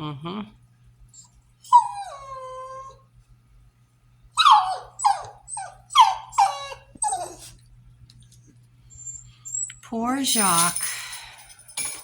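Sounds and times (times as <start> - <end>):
puppy whining: 1.1 - 3.1, 4.4 - 7.7, 8.9 - 9.8
puppy yelping: 1.7 - 3.0, 4.4 - 7.5.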